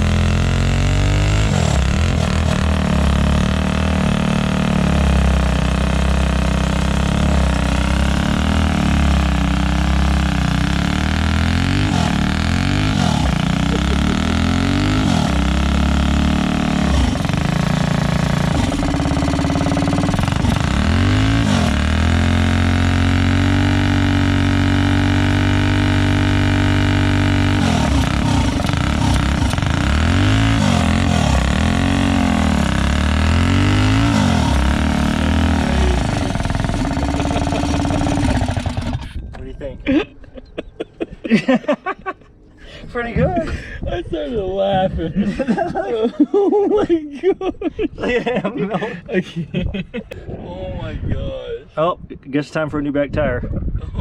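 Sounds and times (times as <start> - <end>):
engine revving hard: 0.0 - 39.2.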